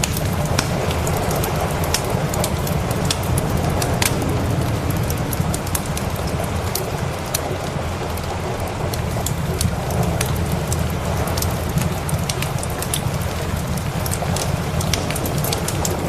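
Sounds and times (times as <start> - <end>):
steady rain hiss: 0.0 - 16.0
wood fire crackling: 0.0 - 16.0
low rumble: 0.2 - 12.3.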